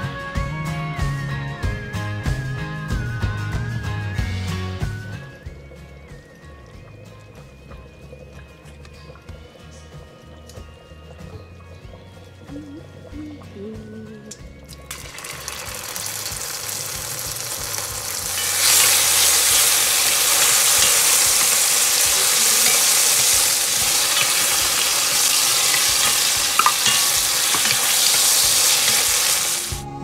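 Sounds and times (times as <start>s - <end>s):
garlic and onion sizzling in oil: 14.4s - 29.9s
wooden spoon stirring: 18.4s - 29.7s.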